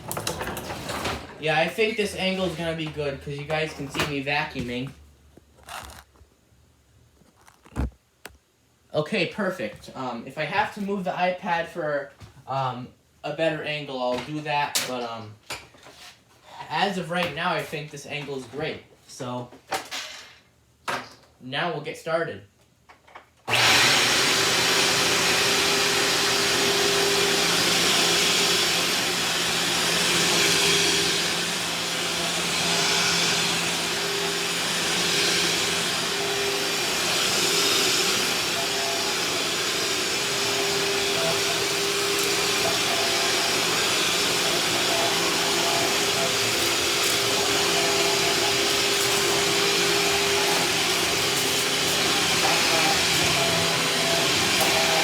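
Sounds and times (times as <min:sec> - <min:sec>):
vacuum cleaner running: 0:23.5 - 0:55.0.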